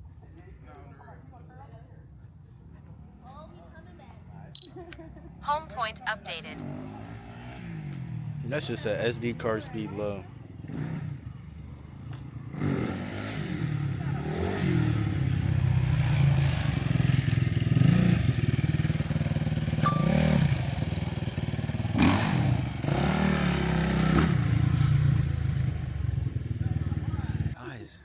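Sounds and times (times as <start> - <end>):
short high beep: 4.6 - 4.8, 19.8 - 20.7
dirt bike engine revving: 12.4 - 27.6.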